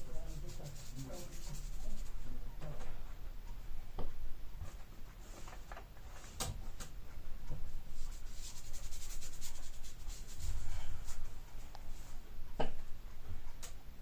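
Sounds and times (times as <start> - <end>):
scratching on painted surface: 0.0 - 2.2, 8.0 - 11.2.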